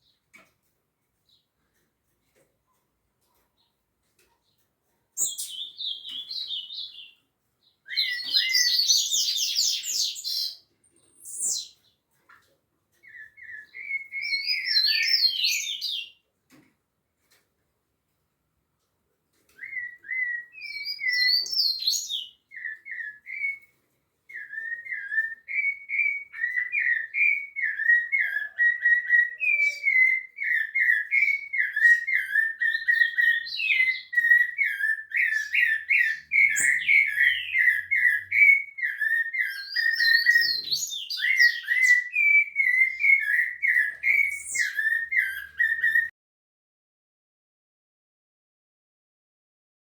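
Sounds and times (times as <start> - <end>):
thrush singing whistled phrases: 13.1 - 16.1, 19.6 - 23.6, 24.3 - 46.1.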